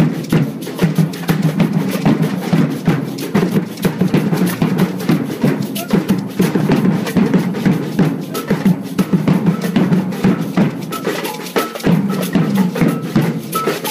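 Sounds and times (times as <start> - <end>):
drums in fast rhythm: 0.0 - 13.9.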